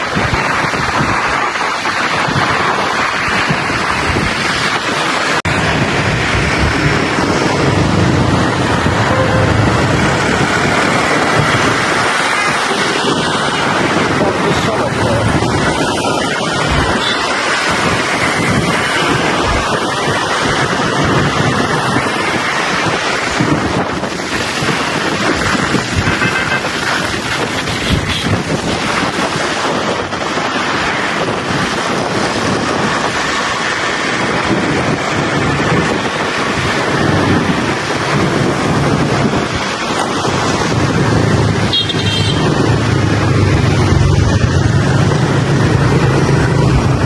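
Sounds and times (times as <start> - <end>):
surrounding traffic: 0.0 - 47.0
wind rushing over microphone: 0.0 - 47.0
motorbike engine: 40.4 - 47.0.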